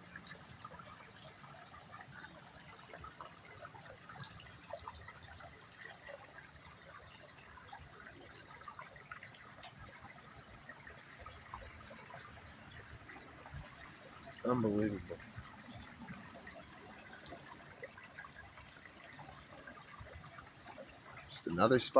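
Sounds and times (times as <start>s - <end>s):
creek trickling over stones: 0.0s - 21.9s
insects chorus: 0.0s - 21.9s.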